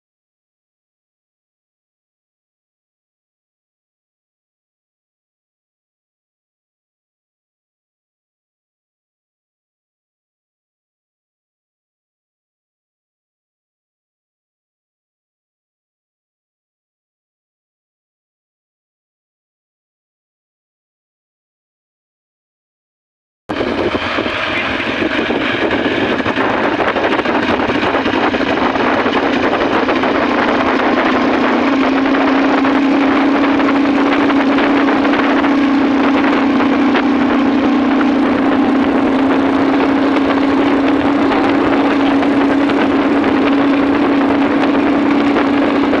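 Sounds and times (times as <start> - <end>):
motorcycle engine cruising: 23.5 - 46.0
wind noise: 23.5 - 46.0.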